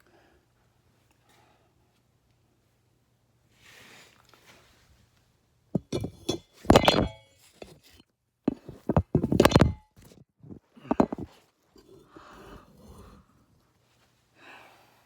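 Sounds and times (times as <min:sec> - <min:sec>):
metal parts clanking: 0:05.8 - 0:09.8, 0:10.9 - 0:11.3.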